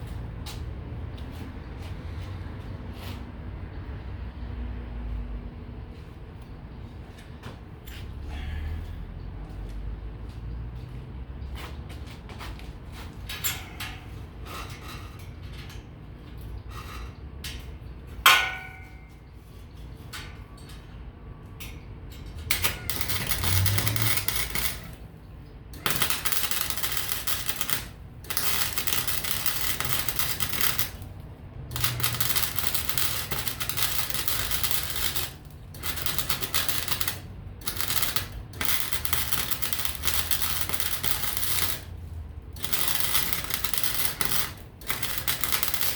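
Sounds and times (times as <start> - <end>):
welding arc crackling: 22.5 - 45.9.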